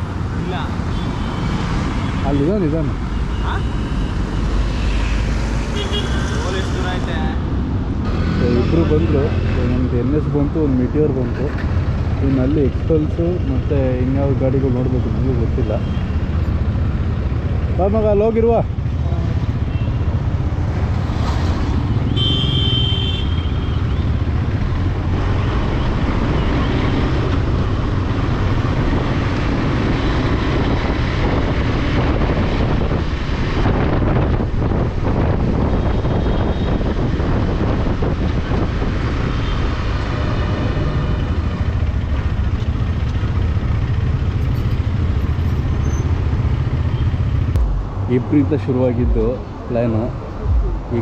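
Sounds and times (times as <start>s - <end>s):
motorcycle engine rumbling: 21.8s - 51.0s
wind noise on microphone: 27.4s - 41.5s.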